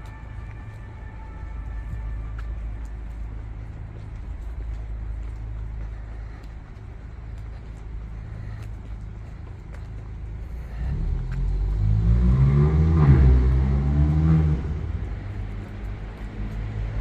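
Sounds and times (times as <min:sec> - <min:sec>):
low rumble of city traffic: 0:00.0 - 0:17.0
vehicle engine passing by: 0:10.8 - 0:17.0.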